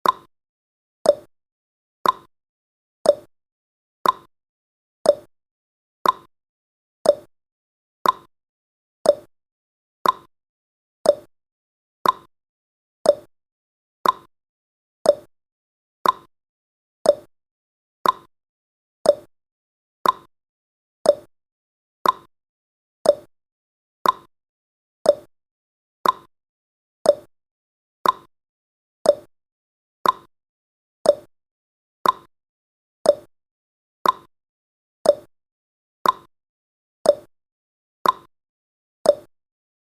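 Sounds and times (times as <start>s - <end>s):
timer ticking: 0.0s - 0.3s, 1.0s - 1.3s, 2.0s - 2.3s, 3.0s - 3.3s, 4.0s - 4.3s, 5.1s - 5.3s, 6.0s - 6.3s, 7.0s - 7.3s, 8.0s - 8.3s, 9.0s - 9.3s, 10.0s - 10.3s, 11.0s - 11.3s, 12.0s - 12.3s, 13.0s - 13.3s, 14.0s - 14.3s, 15.0s - 15.3s, 16.0s - 16.3s, 17.0s - 17.3s, 18.0s - 18.3s, 19.0s - 19.3s, 20.0s - 20.3s, 21.0s - 21.3s, 22.0s - 22.3s, 23.0s - 23.3s, 24.0s - 24.3s, 25.0s - 25.3s, 26.0s - 26.3s, 27.0s - 27.3s, 28.0s - 28.3s, 29.0s - 29.3s, 30.0s - 30.3s, 31.0s - 31.3s, 32.0s - 32.3s, 33.0s - 33.3s, 34.0s - 34.3s, 35.0s - 35.3s, 36.0s - 36.3s, 37.0s - 37.3s, 38.0s - 38.3s, 39.1s - 39.3s.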